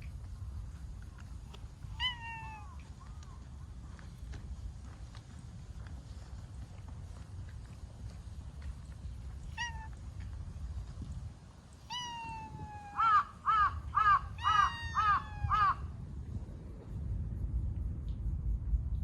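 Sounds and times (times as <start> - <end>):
animal calling: 9.6 - 9.9, 11.9 - 15.8.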